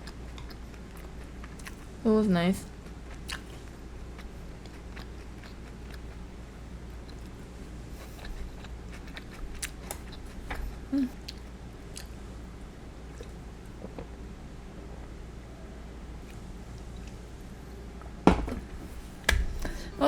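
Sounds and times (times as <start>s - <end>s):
chewing and biting crispy food: 2.8s - 10.4s.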